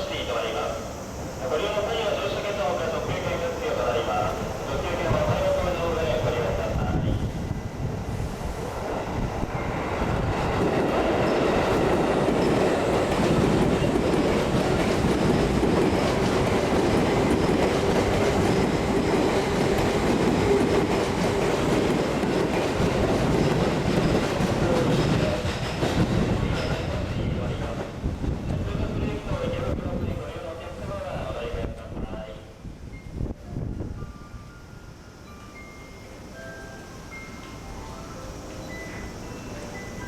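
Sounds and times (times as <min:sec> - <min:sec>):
wheels clacking on rail joints: 0:10.0 - 0:28.5.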